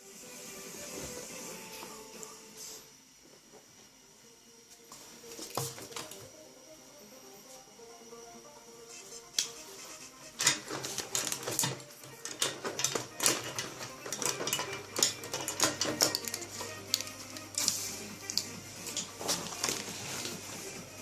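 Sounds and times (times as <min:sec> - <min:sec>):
music playing: 0:00.0 - 0:03.0, 0:04.4 - 0:21.0
pens clattering on hard surface: 0:10.4 - 0:20.4.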